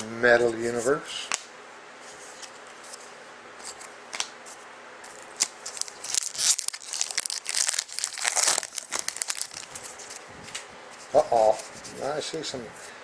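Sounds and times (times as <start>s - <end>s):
wrapper tearing and crinkling: 5.1s - 10.2s.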